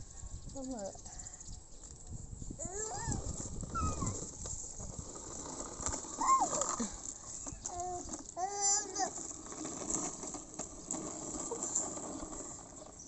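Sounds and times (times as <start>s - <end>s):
child squealing and calling: 2.6s - 4.2s, 6.2s - 6.7s.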